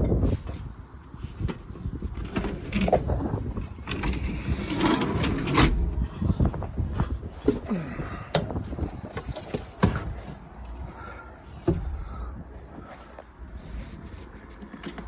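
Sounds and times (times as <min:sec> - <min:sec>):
low engine rumble: 0:00.0 - 0:15.0
knocks and clanks: 0:01.4 - 0:10.6, 0:11.6 - 0:12.4.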